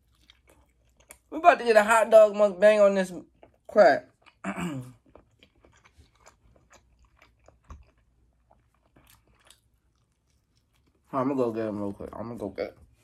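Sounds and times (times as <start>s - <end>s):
chewing and biting: 0.0s - 1.3s, 3.2s - 11.1s
mouth clicks and small crunches: 3.3s - 11.1s.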